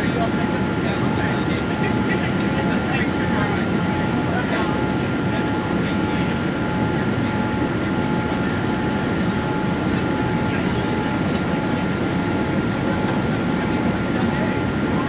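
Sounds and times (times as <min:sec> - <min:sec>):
aircraft cabin engine rush: 0:00.0 - 0:15.0.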